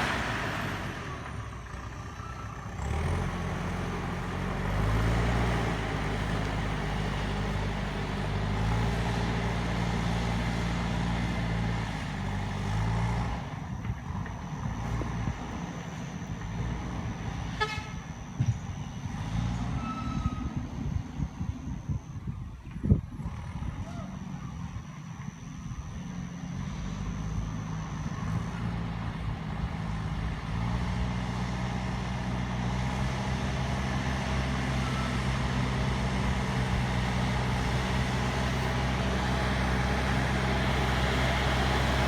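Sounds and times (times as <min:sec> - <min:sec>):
heavy machine engine running: 0:00.0 - 0:42.0.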